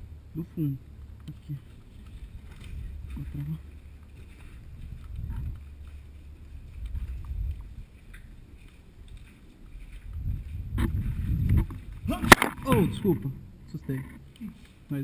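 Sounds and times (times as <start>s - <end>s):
camera handling rumble: 10.0s - 13.2s.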